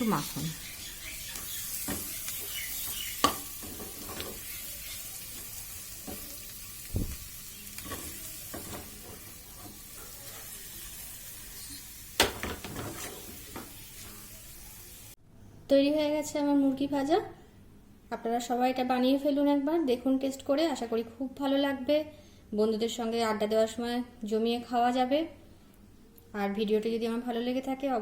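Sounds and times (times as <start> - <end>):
chicken sizzling in a frying pan: 0.0 - 15.2
utensil scraping a pan: 12.4 - 14.2.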